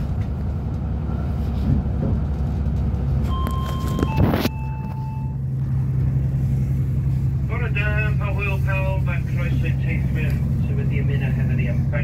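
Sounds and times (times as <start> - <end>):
train rumbling: 0.0 - 12.0
high two-pitched tone: 3.3 - 5.4.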